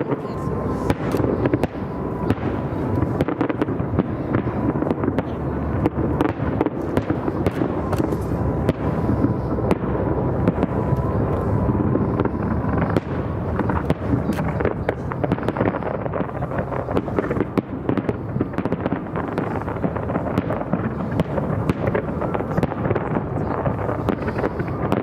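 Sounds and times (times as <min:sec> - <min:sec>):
fireworks cracks and bangs: 0:00.0 - 0:25.0
rumble of distant fireworks bursts: 0:00.0 - 0:25.0.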